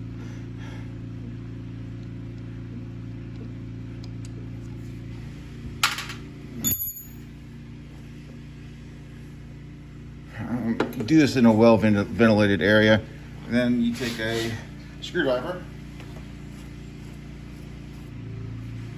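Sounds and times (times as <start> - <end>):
low machine hum: 0.0 - 18.9
ringing metallic clink: 6.6 - 7.4.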